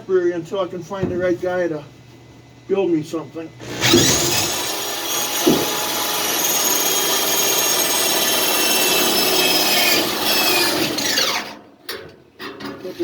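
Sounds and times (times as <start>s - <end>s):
electric drill running: 3.6s - 11.6s.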